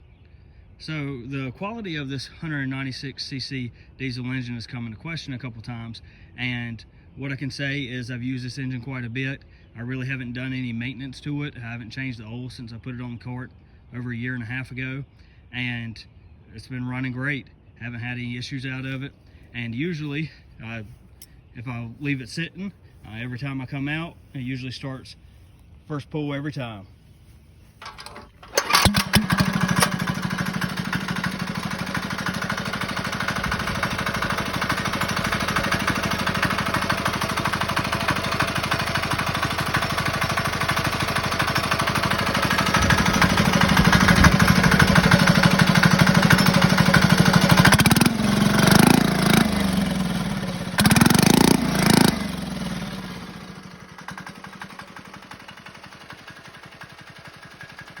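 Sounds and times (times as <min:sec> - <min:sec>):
diesel engine running: 0:27.2 - 0:58.0.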